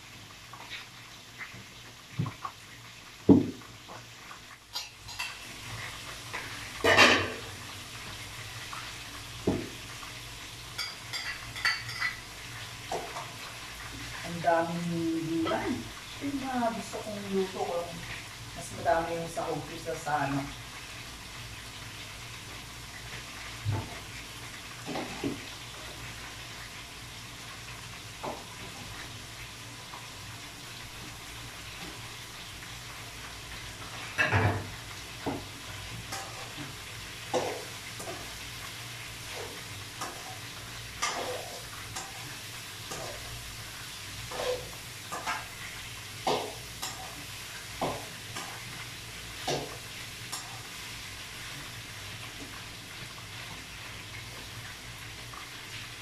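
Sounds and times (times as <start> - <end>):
food sizzling in a wok: 0.0 - 56.0
metal spoon scraping pan: 41.0 - 42.2, 44.3 - 45.4.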